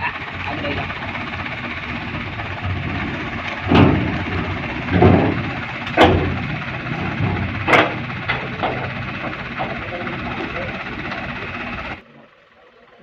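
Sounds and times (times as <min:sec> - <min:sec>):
truck engine running: 0:00.0 - 0:13.0
stones tumbling with heavy thuds: 0:01.7 - 0:09.8.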